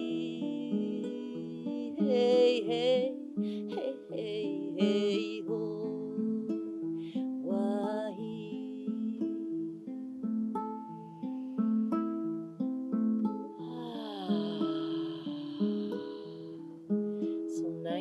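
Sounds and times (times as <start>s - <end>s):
acoustic guitar picked slowly: 0.0s - 18.0s
wordless melody line: 0.0s - 18.0s.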